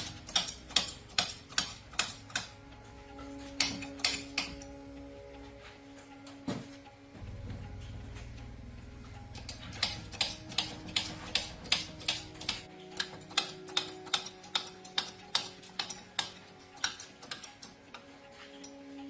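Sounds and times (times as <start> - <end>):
sharp evenly spaced clicks: 0.0 - 2.8, 3.6 - 4.8, 9.2 - 18.8
soft background music: 0.0 - 19.0
low hum: 2.6 - 13.0.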